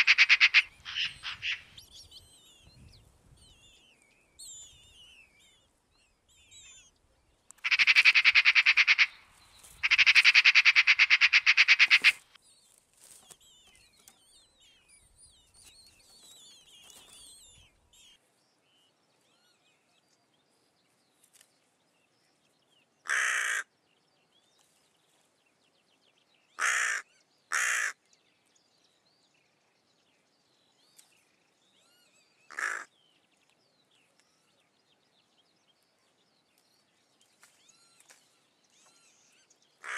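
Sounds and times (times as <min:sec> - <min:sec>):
crow cawing: 0:00.0 - 0:01.6, 0:07.6 - 0:09.1, 0:09.8 - 0:12.2, 0:23.0 - 0:23.7, 0:26.6 - 0:28.0, 0:32.5 - 0:32.9
magpie chattering: 0:00.0 - 0:01.8, 0:07.6 - 0:09.2, 0:09.8 - 0:12.2, 0:32.5 - 0:32.9
faint songbird song: 0:00.0 - 0:39.9.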